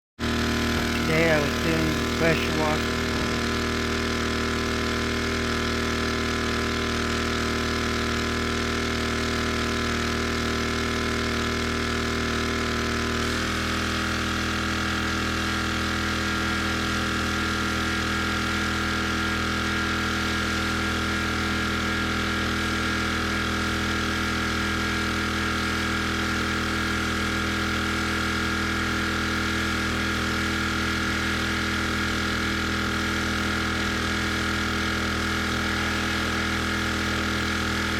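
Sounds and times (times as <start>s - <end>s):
pressure washer engine running: 0.2s - 37.9s.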